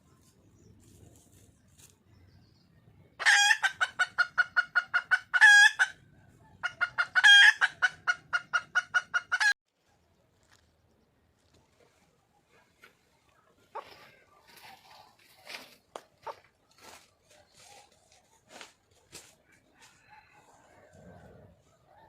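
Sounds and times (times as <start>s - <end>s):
hen clucking: 3.2s - 9.6s, 12.4s - 18.4s.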